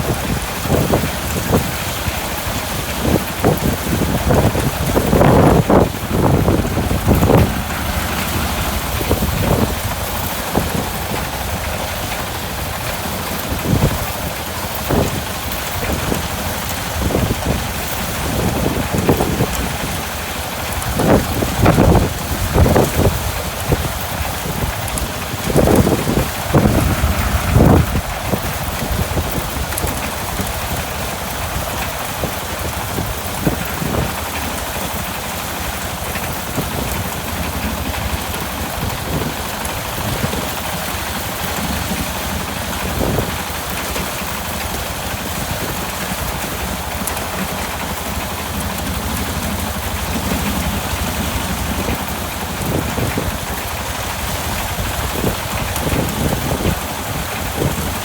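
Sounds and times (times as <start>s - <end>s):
dense rushing noise: 0.0s - 19.8s, 20.8s - 31.8s
small engine running: 3.0s - 31.3s
low thumps: 25.5s - 30.0s.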